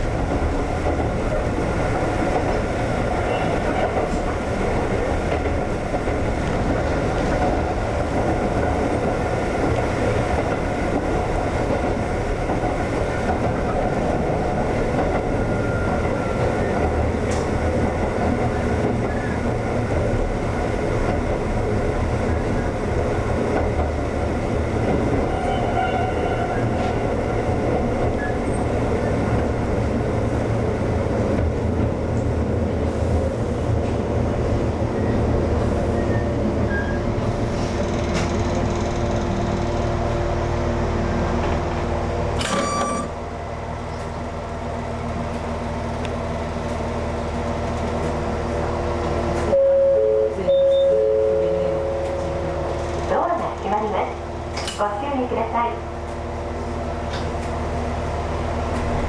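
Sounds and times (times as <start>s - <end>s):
electric train rumbling: 0.0s - 59.0s
click: 17.3s - 17.5s.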